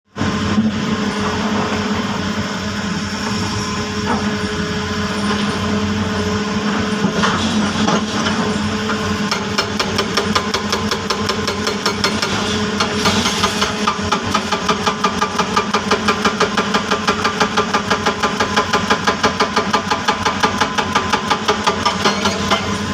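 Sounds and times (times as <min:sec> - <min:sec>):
diesel engine running: 0:00.2 - 0:11.3, 0:21.9 - 0:22.9.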